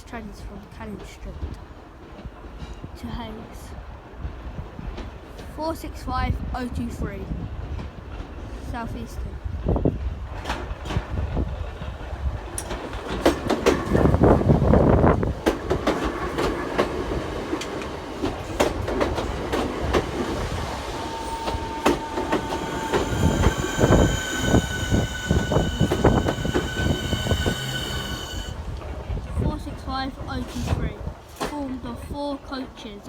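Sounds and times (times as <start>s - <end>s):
train wheels clacking over joints: 10.2s - 29.7s
high-pitched train whine: 12.6s - 29.2s.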